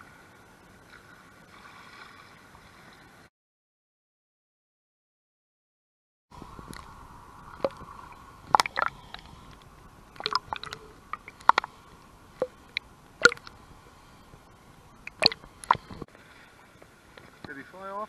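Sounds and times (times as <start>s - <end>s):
canoe paddle splashing water: 0.9s - 3.1s, 6.4s - 17.4s
faint steady hum: 6.4s - 18.0s
water dripping: 6.6s - 16.1s.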